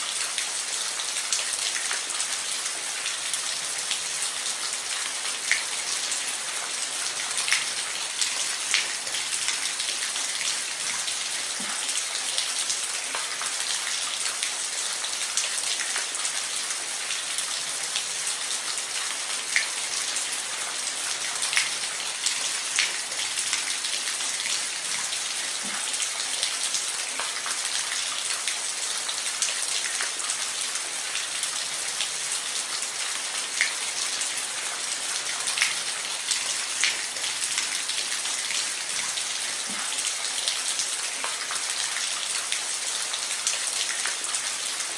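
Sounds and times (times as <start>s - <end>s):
rain falling on a roof: 0.0s - 44.9s.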